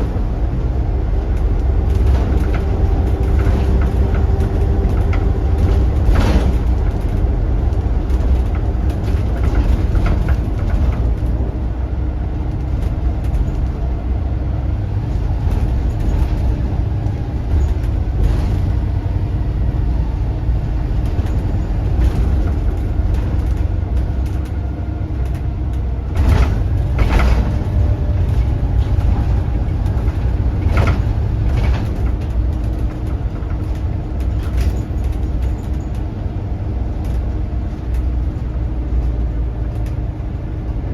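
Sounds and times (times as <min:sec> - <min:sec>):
bus diesel engine rumble: 0:00.0 - 0:40.9
sharp knocks and rattles: 0:01.3 - 0:11.6, 0:15.1 - 0:36.0.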